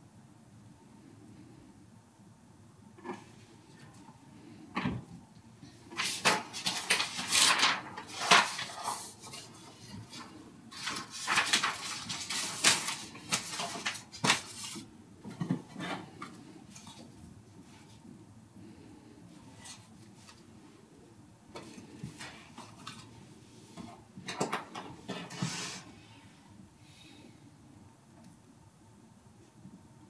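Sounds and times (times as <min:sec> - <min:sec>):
rustling: 0:05.9 - 0:14.9
objects clattering and knocking: 0:05.9 - 0:17.1, 0:23.8 - 0:25.8.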